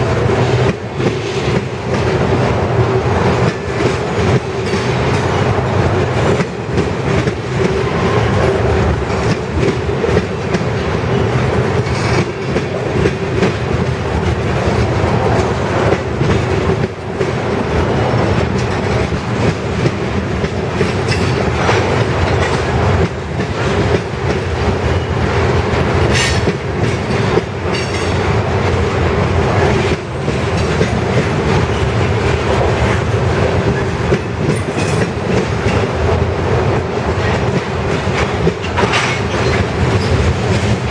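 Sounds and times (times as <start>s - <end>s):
steel wheels rumbling on rail: 0.0s - 40.9s
wheels clicking over rail joints: 29.9s - 36.2s, 36.8s - 40.9s.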